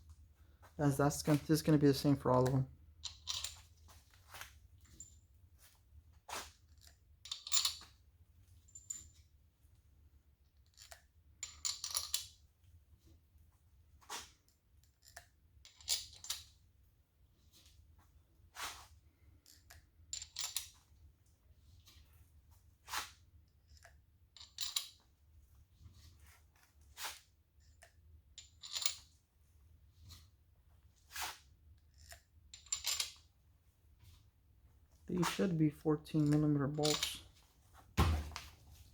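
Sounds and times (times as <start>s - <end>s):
metal bolts clinking and scraping: 3.0s - 3.7s, 28.4s - 29.2s, 31.9s - 33.3s, 36.2s - 37.4s.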